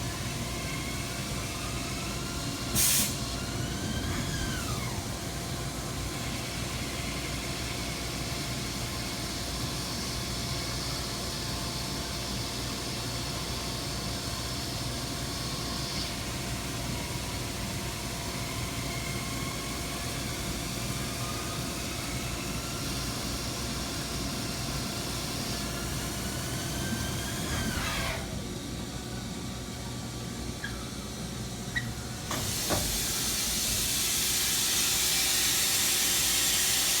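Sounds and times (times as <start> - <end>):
hiss: 2.6 - 3.4, 32.3 - 37.0.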